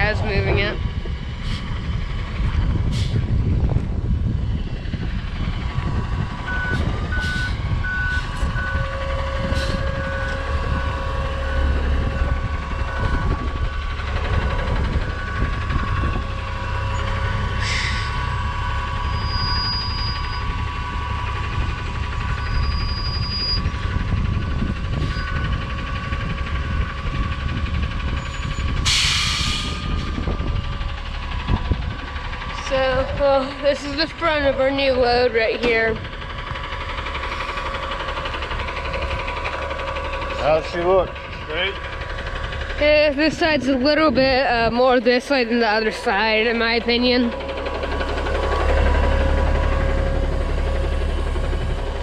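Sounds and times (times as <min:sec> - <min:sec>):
diesel truck engine running: 0:00.0 - 0:52.0
backup alarm beeping: 0:06.5 - 0:08.9
air brake hiss: 0:17.6 - 0:18.1, 0:28.8 - 0:29.8.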